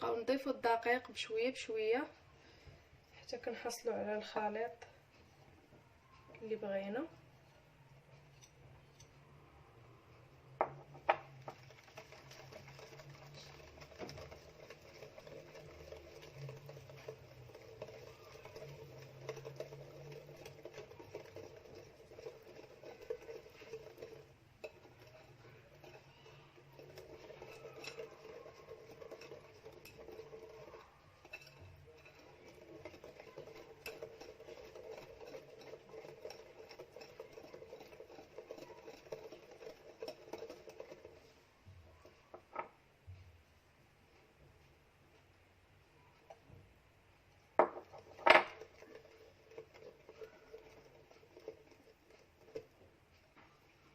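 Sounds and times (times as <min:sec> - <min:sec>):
batter stirred in mixing bowl: 0:00.0 - 0:53.9
utensil scraping bowl: 0:10.5 - 0:42.8, 0:47.6 - 0:53.9.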